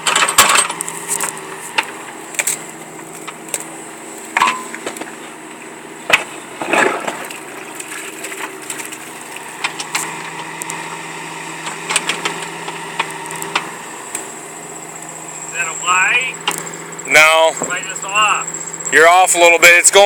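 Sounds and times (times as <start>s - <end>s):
sharp cracks and knocks: 0.0s - 3.7s, 6.1s - 10.8s, 11.6s - 14.3s
engine idling hum: 0.0s - 20.0s.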